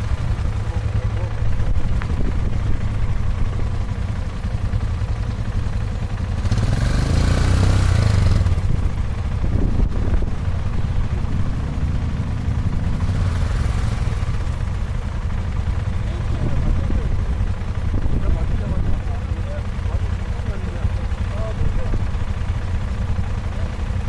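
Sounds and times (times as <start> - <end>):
motorcycle engine rumbling: 0.0 - 24.0
wind rushing over microphone: 8.4 - 10.5.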